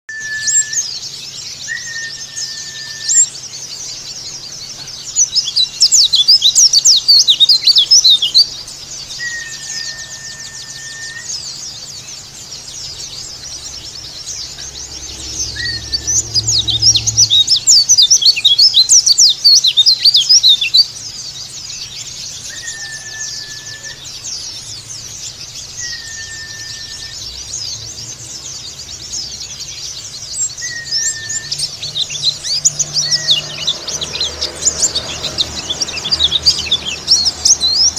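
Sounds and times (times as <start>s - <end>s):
flat steady whistle: 0.1s - 0.9s, 1.7s - 3.3s, 9.2s - 11.5s, 22.5s - 24.0s, 25.8s - 27.3s, 30.6s - 31.7s
bird twittering chirps and trills: 0.1s - 37.9s.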